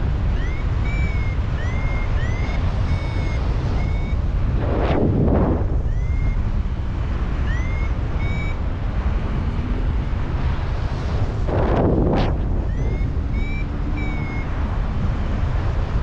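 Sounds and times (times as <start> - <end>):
strong wind buffeting microphone: 0.0 - 16.0
variometer rising beeps: 0.3 - 6.5, 7.4 - 8.6, 12.0 - 14.7.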